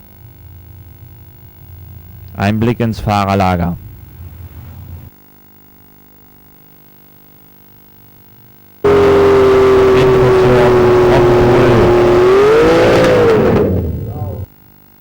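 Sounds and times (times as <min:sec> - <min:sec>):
tractor engine at high revs: 0:08.8 - 0:14.5.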